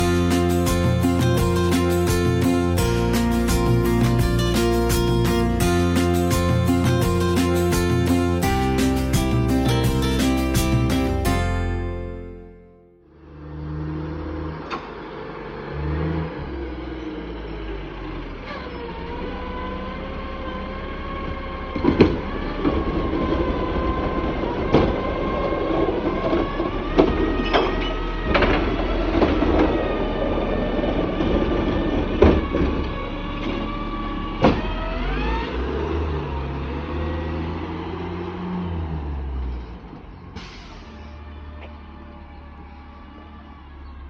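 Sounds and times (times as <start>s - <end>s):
garbage truck engine: 0.0s - 44.0s
metal and trash clanking: 26.3s - 30.0s.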